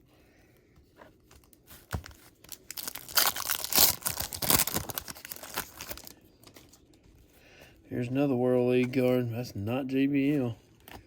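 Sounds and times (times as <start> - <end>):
wrapper crinkling and tearing: 1.9 - 6.8.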